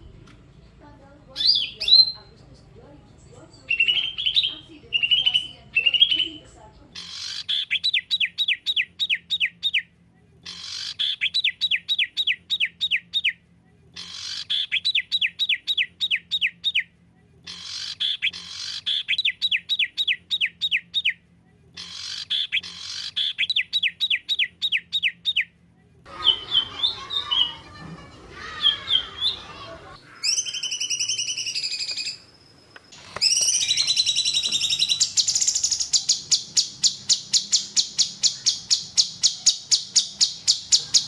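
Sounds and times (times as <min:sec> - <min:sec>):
background noise: 0:00.0 - 0:41.0
bird chirps: 0:01.3 - 0:02.4, 0:03.2 - 0:09.8, 0:26.1 - 0:41.0
bird whistling falling notes: 0:33.0 - 0:35.8.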